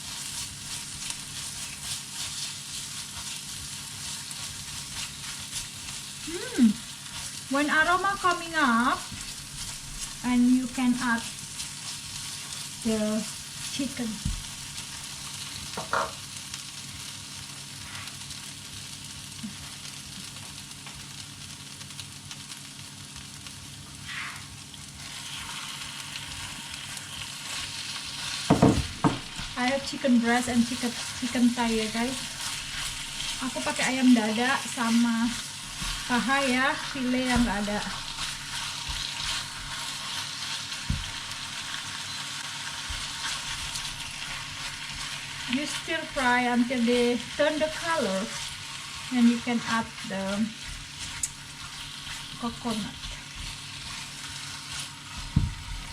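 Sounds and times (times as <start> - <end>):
chicken sizzling in hot oil: 0.0 - 55.9
knocks in a pan: 15.8 - 16.2, 28.5 - 29.3
scrapes in a pan: 17.8 - 18.3, 23.9 - 28.5.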